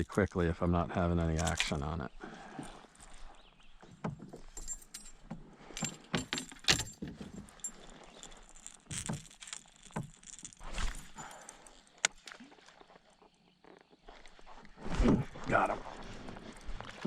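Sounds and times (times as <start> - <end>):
fishing tackle jingling and clicking: 1.1 - 1.9, 4.2 - 12.2.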